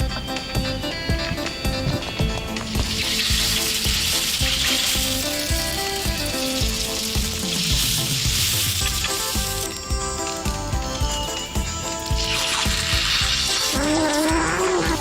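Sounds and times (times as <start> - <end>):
background music with steady beat: 0.0 - 15.0
loud hissing sizzling noise: 0.0 - 15.0.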